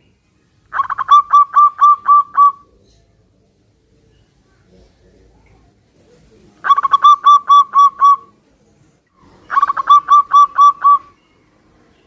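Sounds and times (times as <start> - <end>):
dove cooing: 0.7 - 3.0, 6.0 - 8.4, 9.2 - 11.2.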